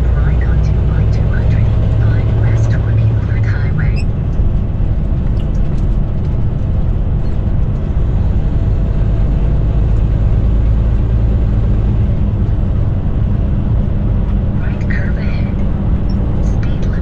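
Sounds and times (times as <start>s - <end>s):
truck engine and tyre drone: 0.0s - 17.0s.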